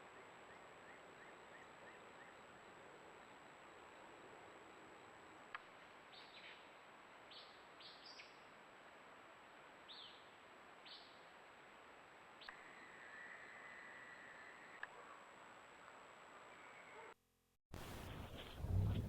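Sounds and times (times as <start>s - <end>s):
faint bird chirps: 0.0s - 2.7s, 6.1s - 8.5s, 12.4s - 15.3s
microphone hiss: 0.0s - 17.0s, 17.8s - 19.0s.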